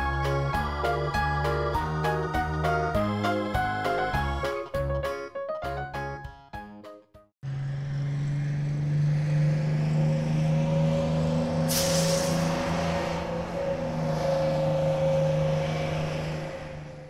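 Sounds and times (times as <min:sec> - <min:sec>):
burst of hiss: 0:11.7 - 0:12.6.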